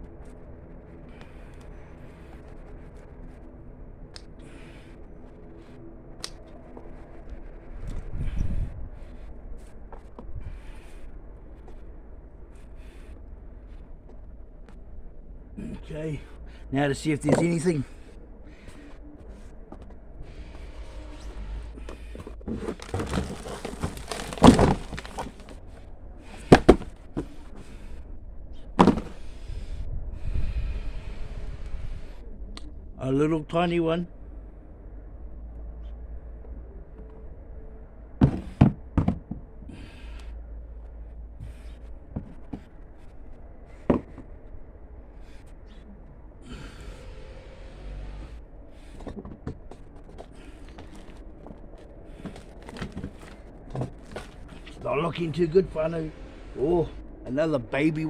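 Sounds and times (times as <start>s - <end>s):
soil scraping and rustling: 16.8s - 18.0s, 20.3s - 27.8s, 46.5s - 58.0s.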